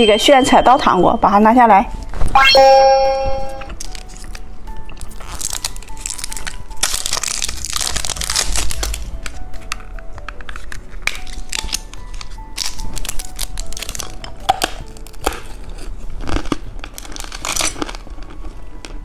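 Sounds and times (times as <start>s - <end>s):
light background music: 0.0s - 19.0s
plastic packaging crinkling: 5.3s - 9.0s.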